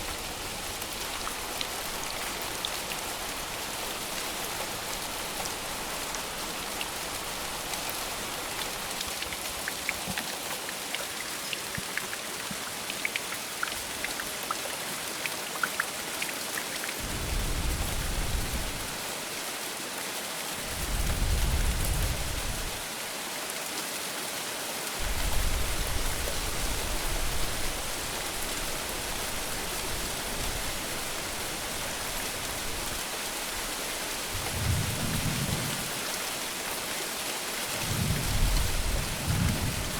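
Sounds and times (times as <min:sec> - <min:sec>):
heavy rain hissing: 0:00.0 - 0:09.0, 0:17.0 - 0:19.5, 0:20.6 - 0:22.9, 0:25.0 - 0:39.9
drip ticks: 0:09.0 - 0:17.0
thunder rumbling: 0:17.0 - 0:19.0, 0:34.3 - 0:36.1, 0:37.8 - 0:39.9.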